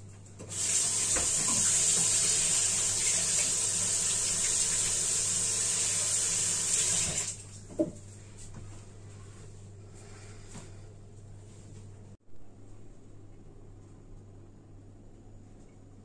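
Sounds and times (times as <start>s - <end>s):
tap water running into sink: 0.4s - 7.9s.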